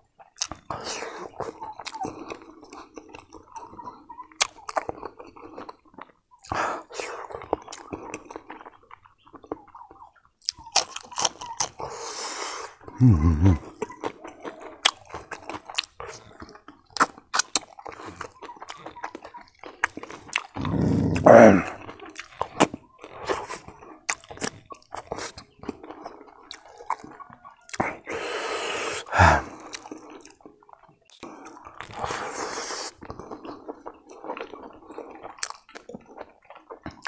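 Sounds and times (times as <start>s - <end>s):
person chewing and crunching food: 0.0s - 37.0s.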